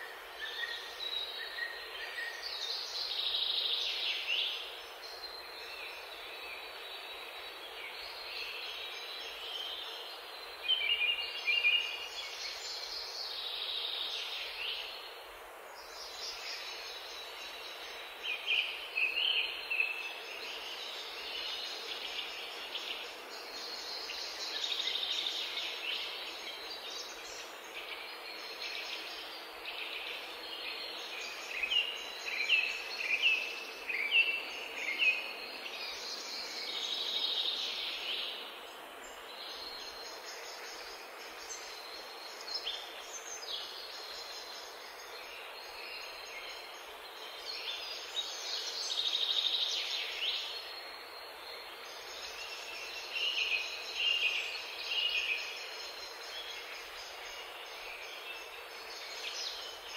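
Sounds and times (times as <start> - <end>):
songbirds chirping and singing: 0.0 - 59.9
steady background hiss: 0.0 - 59.9.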